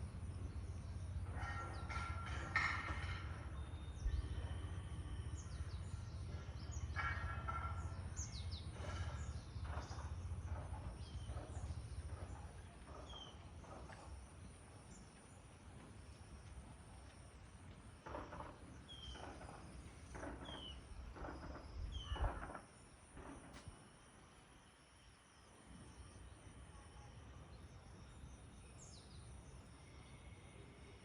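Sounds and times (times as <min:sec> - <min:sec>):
small birds chirping: 0:00.0 - 0:17.2, 0:18.1 - 0:22.9.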